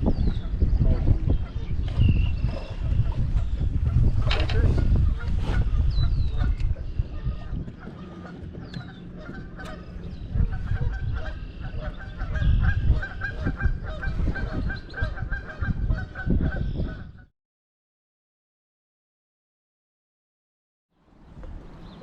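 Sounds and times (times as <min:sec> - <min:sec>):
geese honking: 0:02.5 - 0:17.2.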